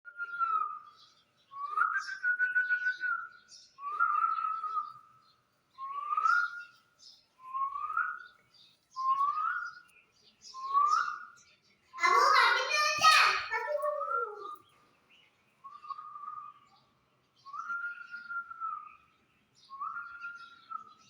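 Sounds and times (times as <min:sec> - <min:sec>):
rising whistles with breathy rasp: 0:00.1 - 0:05.1.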